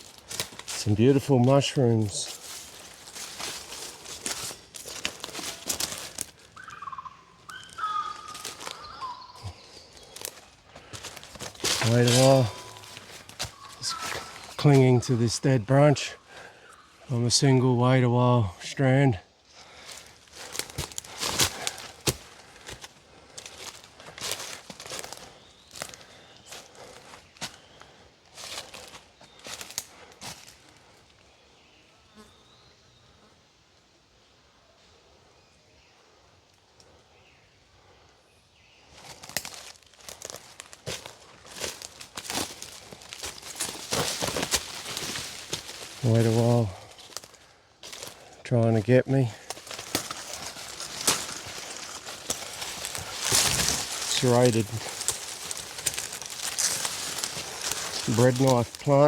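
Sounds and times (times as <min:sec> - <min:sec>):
footsteps crunching through leaves: 0:00.0 - 0:15.9, 0:19.6 - 0:30.9, 0:38.9 - 0:59.0
faint forest background: 0:00.0 - 0:59.0
bird whistling calls: 0:06.6 - 0:09.9, 0:12.5 - 0:14.6.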